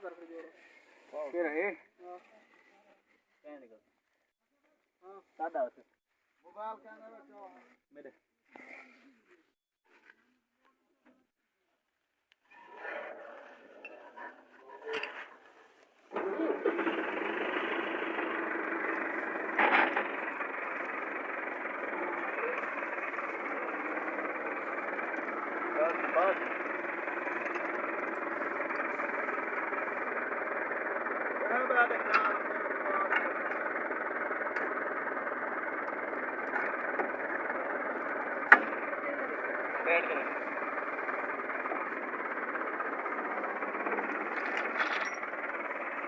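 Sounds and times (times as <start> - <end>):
tractor diesel engine running: 12.5 - 46.0.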